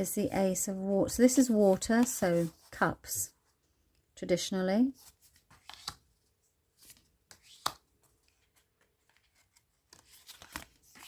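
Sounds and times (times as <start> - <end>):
cards sliding and tapping: 5.5 - 6.0, 6.8 - 11.0.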